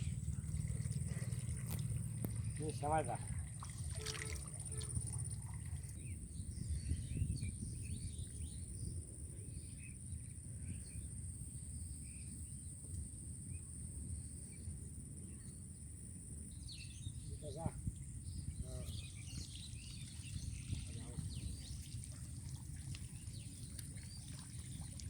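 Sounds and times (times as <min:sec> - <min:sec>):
constant low rumble: 0:00.0 - 0:25.0.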